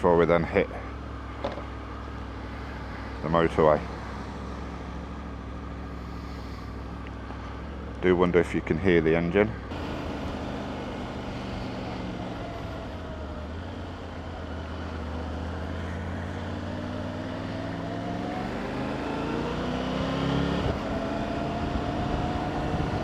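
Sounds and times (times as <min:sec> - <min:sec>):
motorcycle engine accelerating: 0:09.5 - 0:23.0
wind rumble on microphone: 0:20.6 - 0:23.0.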